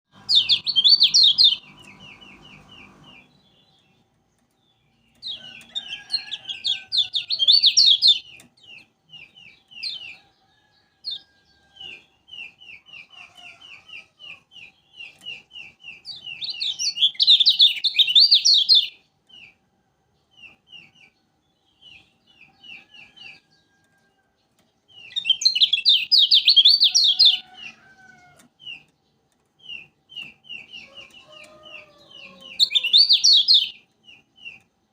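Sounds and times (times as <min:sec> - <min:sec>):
bird chattering trills: 0:00.2 - 0:03.3.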